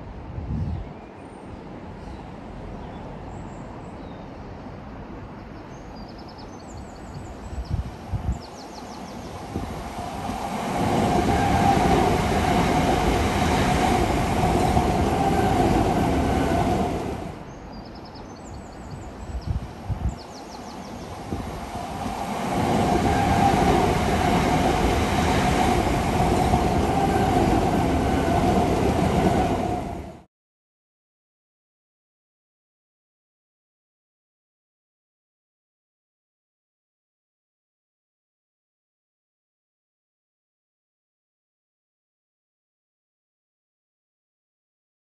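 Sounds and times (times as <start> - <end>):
electric train running on rails: 7.2 - 17.5, 19.2 - 30.3.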